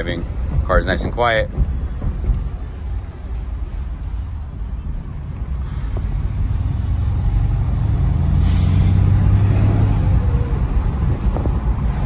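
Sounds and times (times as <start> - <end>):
car engine drone: 0.0 - 12.0
brief hiss: 8.4 - 9.0.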